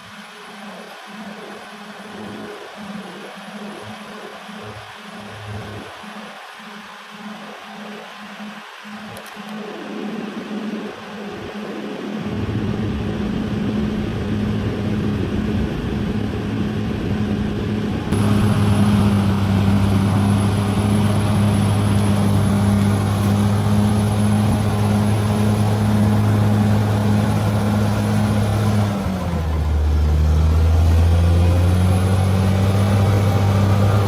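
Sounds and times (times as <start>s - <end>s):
bulldozer diesel engine running: 12.2s - 34.0s.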